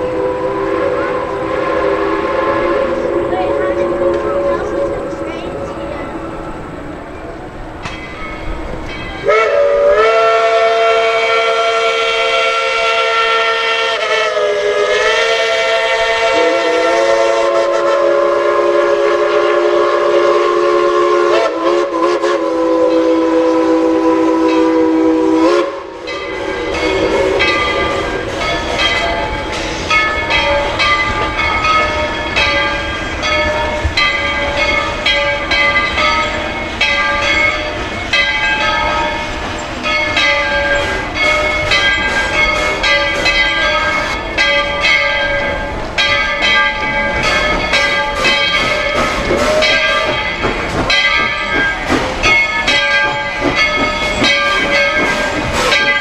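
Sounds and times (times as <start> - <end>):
steam locomotive whistle: 0.0 - 5.7, 9.2 - 56.0
train knocks and clanks: 0.0 - 56.0.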